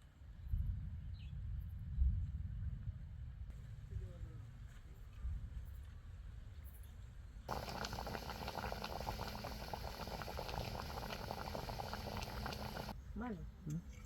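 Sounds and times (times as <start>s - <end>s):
food sizzling in hot oil: 7.5s - 12.9s.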